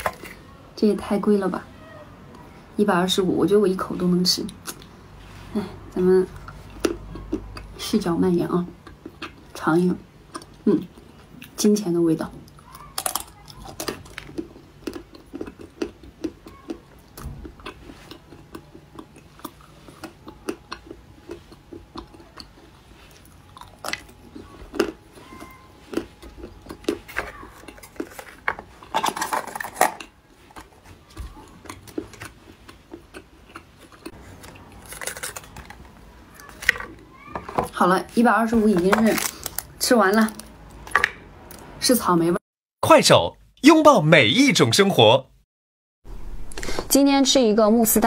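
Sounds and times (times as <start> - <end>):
chewing sweet: 4.4 - 8.0, 8.6 - 9.6, 12.4 - 37.3.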